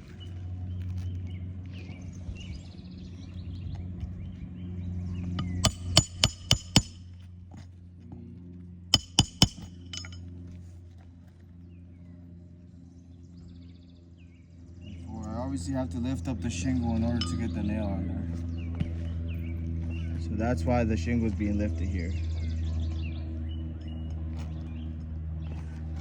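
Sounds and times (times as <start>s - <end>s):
steady low hum: 3.8s - 10.9s, 11.5s - 26.0s
hammer striking nail: 5.4s - 7.1s, 9.0s - 10.2s.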